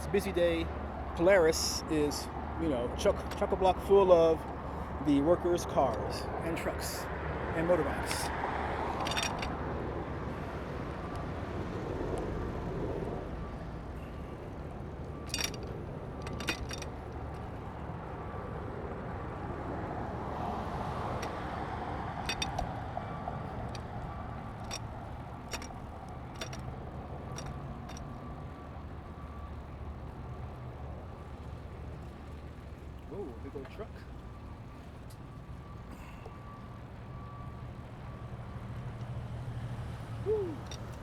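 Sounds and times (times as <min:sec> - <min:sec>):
road traffic rumble: 0:00.0 - 0:41.0
sharp clicks and ticks: 0:15.3 - 0:17.0, 0:25.5 - 0:26.7.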